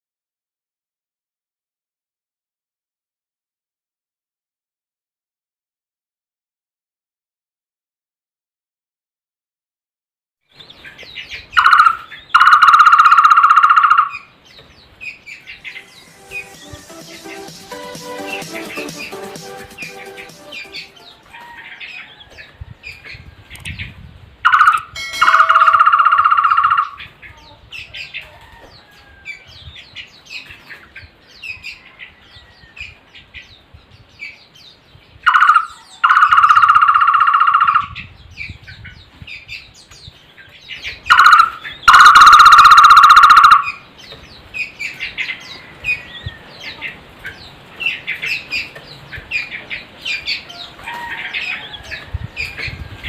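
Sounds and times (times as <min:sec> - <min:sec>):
barbet calling with trill: 0:11.4 - 0:14.3, 0:15.4 - 0:21.3, 0:24.5 - 0:27.1, 0:35.3 - 0:38.1, 0:41.0 - 0:43.8.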